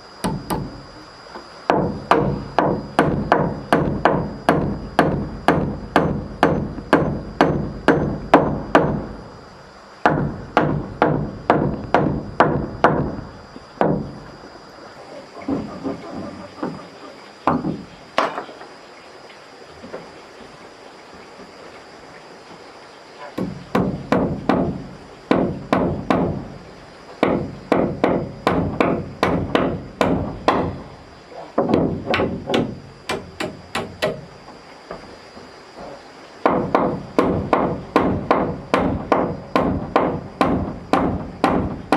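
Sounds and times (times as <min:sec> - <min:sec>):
hammer blows on wood: 0:01.7 - 0:09.2.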